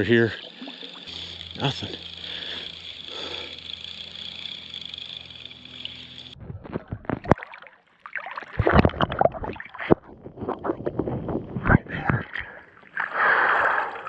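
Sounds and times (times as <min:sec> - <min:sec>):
steady outdoor hiss: 0:00.0 - 0:06.4
water sloshing and splashing: 0:06.6 - 0:11.0, 0:12.4 - 0:14.0.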